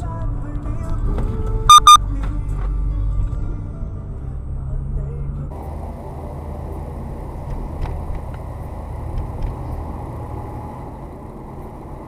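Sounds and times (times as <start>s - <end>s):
car driving road noise: 4.4s - 12.0s.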